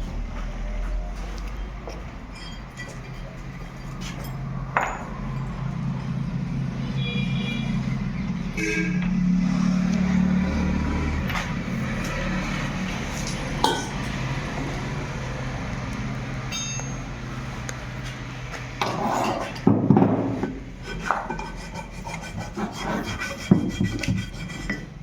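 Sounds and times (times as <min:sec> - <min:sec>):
rubbing and scraping: 0:20.8 - 0:25.0.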